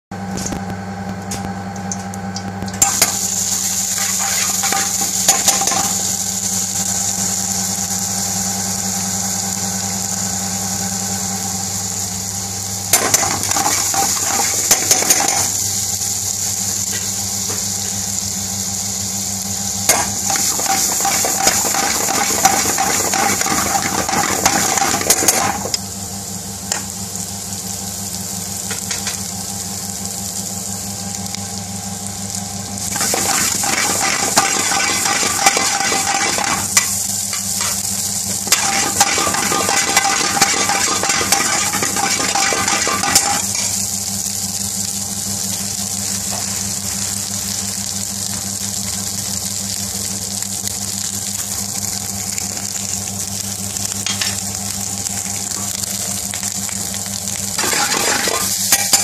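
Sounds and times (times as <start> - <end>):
steady low hum: 0.1 - 48.4
food sizzling in a frying pan: 0.2 - 59.0
utensil scraping and clattering on pan: 3.9 - 6.0, 13.0 - 15.5, 19.9 - 25.8, 32.9 - 37.8, 38.5 - 43.8, 57.6 - 59.0.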